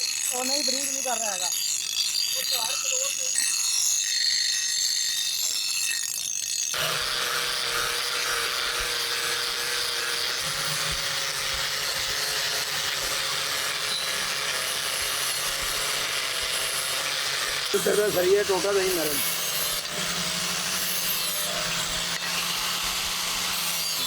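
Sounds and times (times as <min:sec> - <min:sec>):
blade grinding on sharpening wheel: 0:00.0 - 0:24.0
motor hum: 0:06.7 - 0:24.0.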